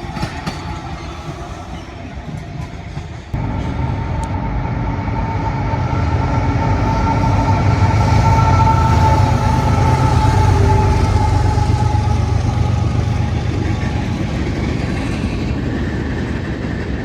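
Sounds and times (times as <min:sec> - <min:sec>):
diesel locomotive rumble: 0:03.0 - 0:17.0
steady whine: 0:03.4 - 0:15.8.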